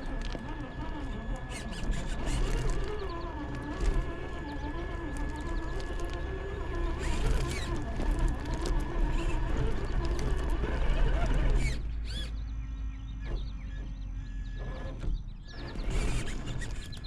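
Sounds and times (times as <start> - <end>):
toy car electric motor whining: 0.0 - 12.4, 15.6 - 17.0.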